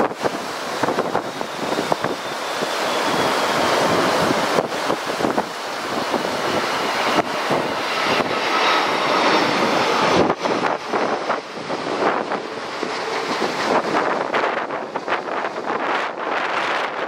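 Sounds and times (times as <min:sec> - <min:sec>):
jet airliner passing low: 0:00.0 - 0:17.0
wind buffeting microphone: 0:00.0 - 0:17.0.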